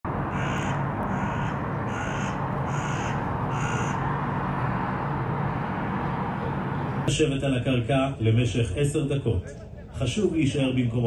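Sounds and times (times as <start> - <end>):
steady background noise: 0.0 - 11.0
bird cawing: 0.2 - 5.0.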